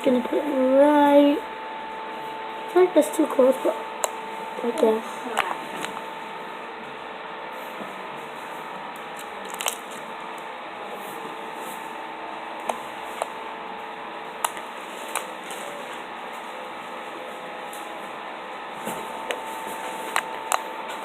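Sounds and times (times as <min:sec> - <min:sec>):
slime squishing: 0:09.1 - 0:10.0.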